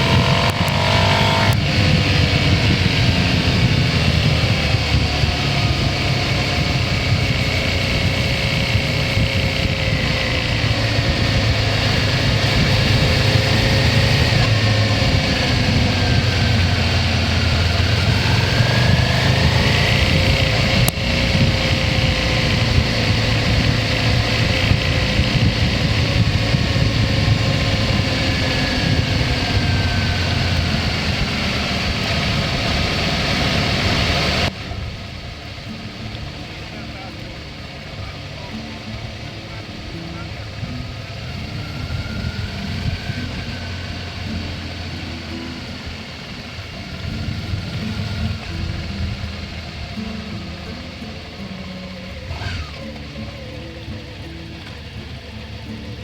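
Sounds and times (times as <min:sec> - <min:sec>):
motorcycle engine cruising: 0:00.0 - 0:56.0
wind and road noise: 0:00.0 - 0:56.0.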